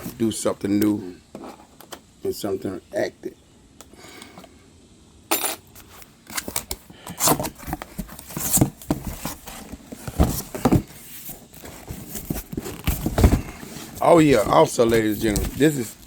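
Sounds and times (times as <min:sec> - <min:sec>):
cardboard packaging rustling: 0:05.8 - 0:16.0.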